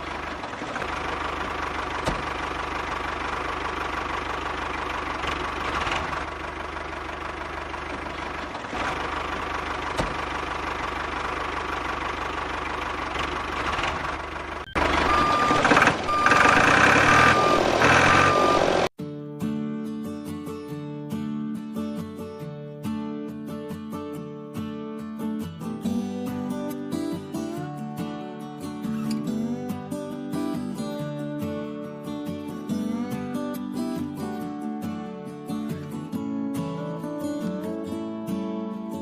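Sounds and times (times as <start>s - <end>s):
short high beeps: 14.7s - 18.7s.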